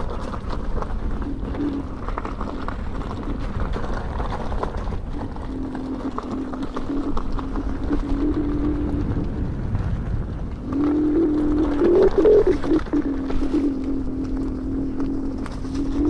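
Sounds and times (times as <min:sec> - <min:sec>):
electric motor hum: 0:00.0 - 0:16.0
wind and tyre rumble: 0:00.0 - 0:16.0.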